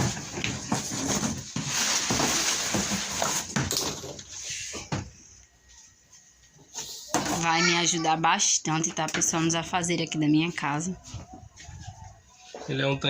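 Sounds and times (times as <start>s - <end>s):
packaging crinkling and rustling: 0.0s - 4.2s.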